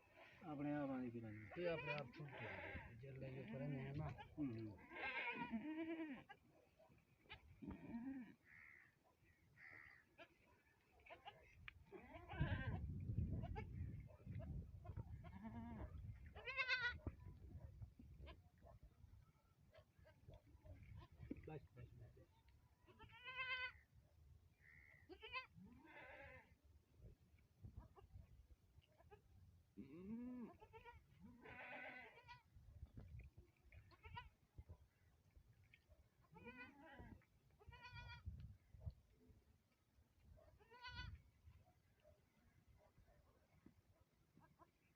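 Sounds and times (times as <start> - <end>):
farm animal bleating: 1.2 - 6.5, 7.3 - 8.9, 11.0 - 13.8, 14.8 - 17.1, 22.8 - 23.8, 25.0 - 26.6, 29.8 - 32.5, 33.8 - 34.4, 36.2 - 38.4, 40.6 - 41.2.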